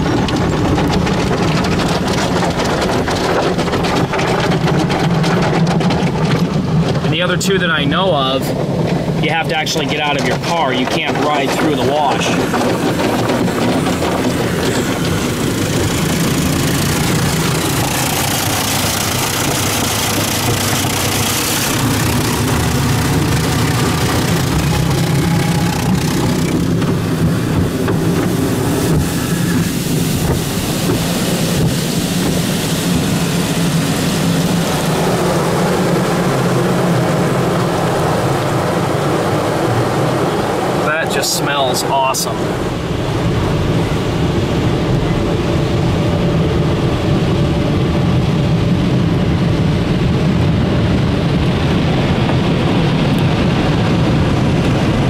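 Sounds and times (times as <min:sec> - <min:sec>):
low machinery hum: 0:00.0 - 0:41.2
hissing water spray: 0:10.5 - 0:36.6.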